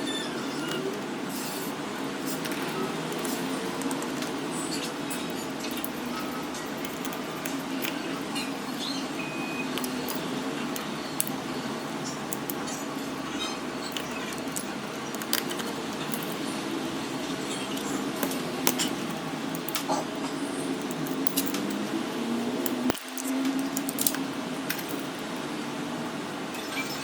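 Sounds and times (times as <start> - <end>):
metal tools clicking: 2.4 - 8.5, 9.7 - 11.4, 12.0 - 16.5, 17.6 - 20.1, 20.8 - 21.8, 22.6 - 25.3.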